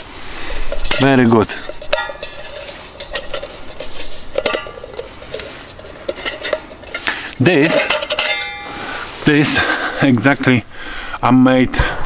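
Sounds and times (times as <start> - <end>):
metal cookware clinking: 0.6 - 9.1.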